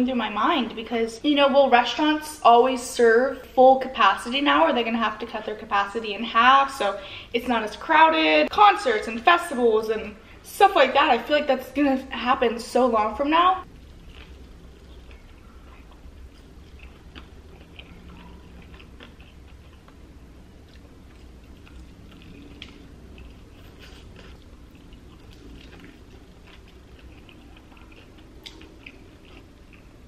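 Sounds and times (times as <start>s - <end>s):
person crunching fried chicken: 13.7s - 30.0s.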